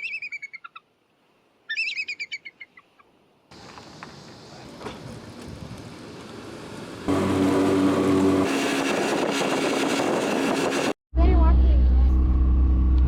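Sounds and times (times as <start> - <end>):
water and wind noise: 3.5 - 11.0
outboard engine humming: 3.5 - 13.0.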